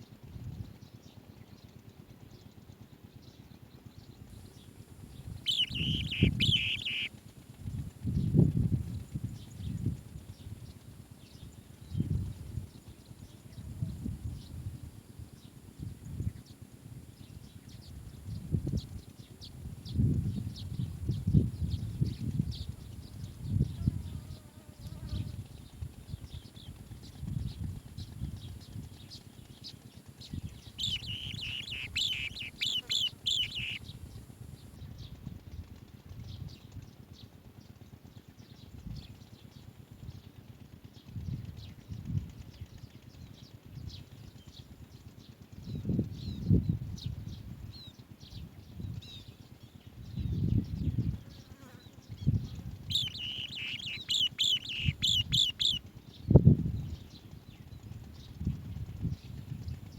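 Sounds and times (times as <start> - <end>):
bird chicks high chirping: 5.2 - 7.1, 30.2 - 34.0, 49.2 - 59.9.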